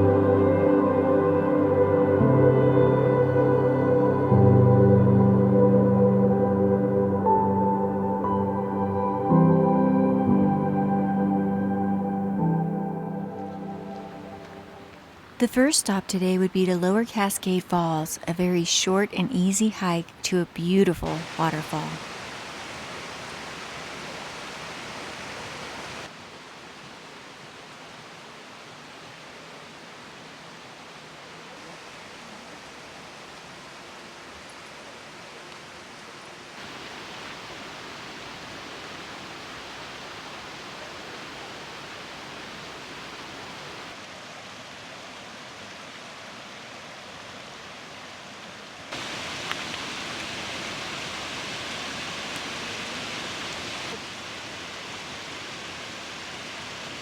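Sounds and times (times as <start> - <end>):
waterfall rushing water: 13.2 - 57.0.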